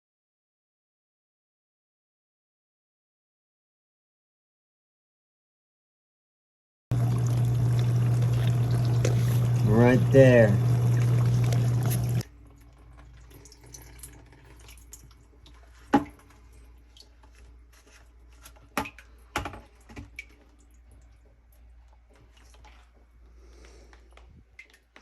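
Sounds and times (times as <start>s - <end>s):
dishwasher motor humming: 6.9s - 14.8s
water drips: 6.9s - 17.6s, 18.7s - 25.0s.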